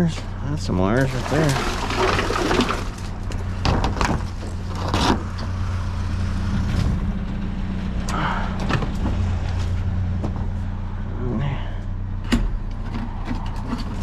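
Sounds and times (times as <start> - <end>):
vehicle engine idling: 0.0 - 14.0
rummaging through junk and wire: 0.9 - 5.5.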